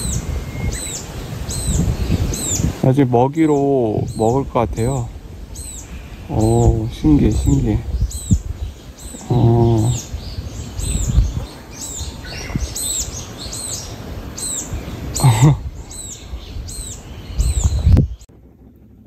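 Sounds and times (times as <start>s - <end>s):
small bird chirping: 0.0s - 18.3s
low outdoor rumble: 0.0s - 19.0s.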